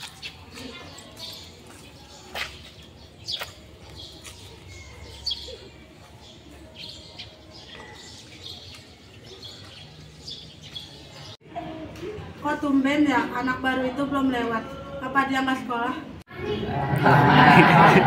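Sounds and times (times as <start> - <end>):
small birds chirping: 0.0 - 11.4
low outdoor background: 0.0 - 18.0.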